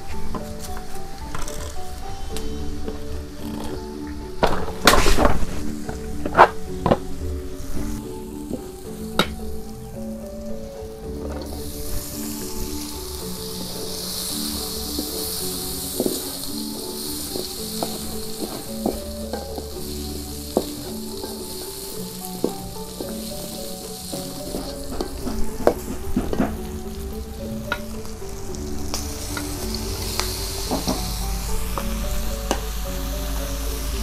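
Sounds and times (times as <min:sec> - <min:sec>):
spice paste sizzling in wok: 0:07.5 - 0:34.0.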